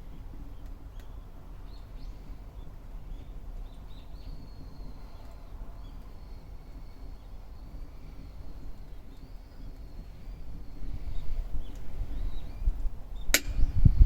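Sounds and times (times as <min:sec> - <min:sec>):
fire snaps: 0:00.4 - 0:01.2, 0:11.6 - 0:12.0, 0:12.7 - 0:13.6.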